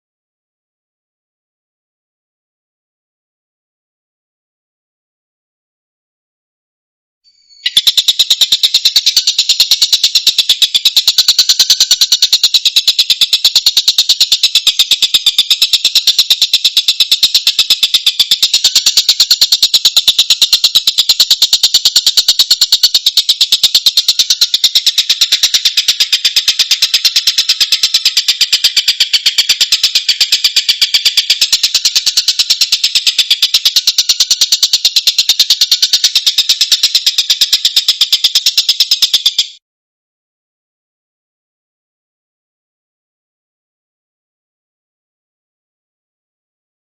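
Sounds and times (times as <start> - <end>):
kingfisher calling: 7.6 - 39.6.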